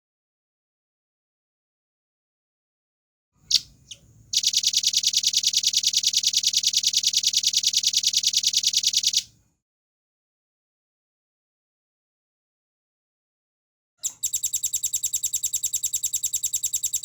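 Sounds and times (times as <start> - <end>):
fast bird trill: 3.5 - 9.2, 14.0 - 17.0.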